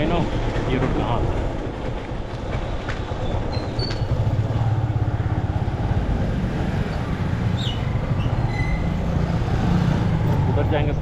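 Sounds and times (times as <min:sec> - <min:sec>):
road and wind noise: 0:00.0 - 0:11.0
motorcycle engine cruising: 0:03.7 - 0:11.0.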